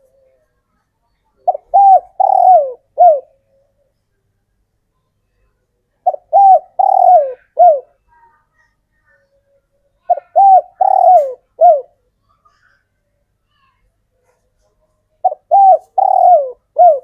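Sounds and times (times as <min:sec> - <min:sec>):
dove cooing: 0:01.4 - 0:03.9, 0:06.0 - 0:08.0, 0:10.1 - 0:12.0, 0:15.2 - 0:17.0.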